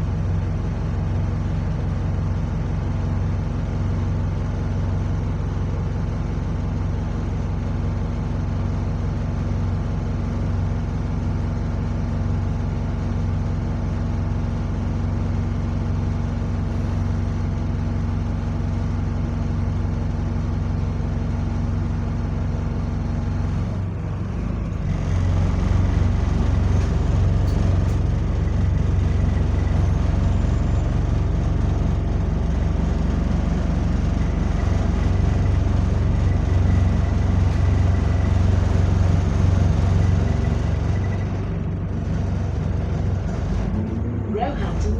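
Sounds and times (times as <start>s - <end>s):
bus diesel engine idling: 0.0s - 44.9s.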